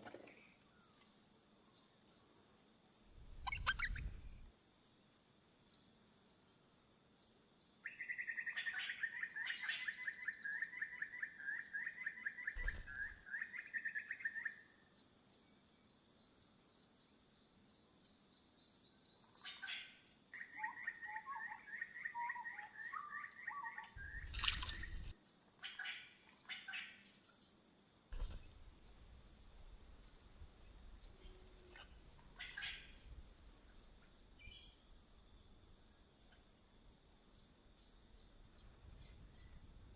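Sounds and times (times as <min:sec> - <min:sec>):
birds chattering calls: 0:03.0 - 0:04.5, 0:12.4 - 0:14.2, 0:19.3 - 0:39.9
steady high chirp: 0:03.1 - 0:04.5
short bird calls: 0:03.3 - 0:04.5, 0:20.6 - 0:27.3, 0:28.1 - 0:34.8.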